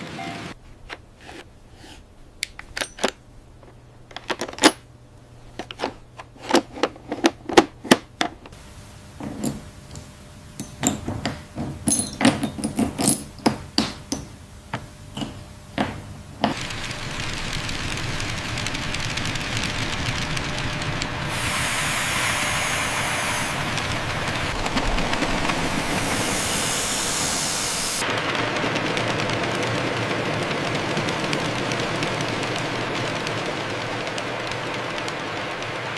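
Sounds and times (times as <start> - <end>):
steady rushing noise: 16.6 - 35.9.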